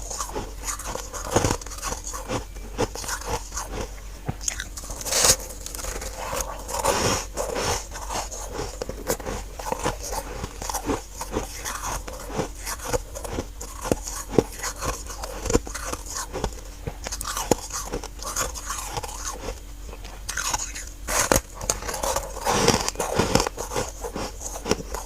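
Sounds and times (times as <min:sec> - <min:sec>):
person chewing frost crunches: 0:00.0 - 0:25.0.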